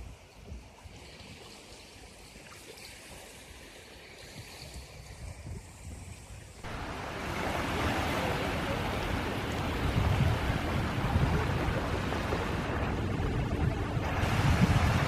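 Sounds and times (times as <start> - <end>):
rush of sea water: 0.0 - 15.0
wind buffeting the microphone: 4.2 - 15.0.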